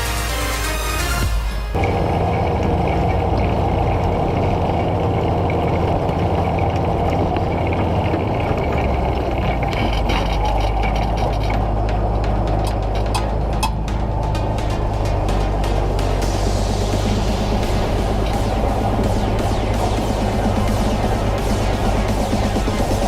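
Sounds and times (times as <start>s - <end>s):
tractor diesel engine running: 0.0s - 23.0s
sharp clicks and rattles: 1.7s - 23.0s.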